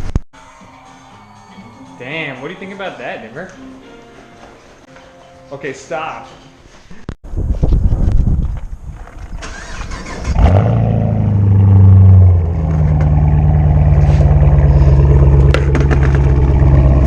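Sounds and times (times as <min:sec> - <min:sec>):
car engine starting and idling: 0:09.3 - 0:17.0.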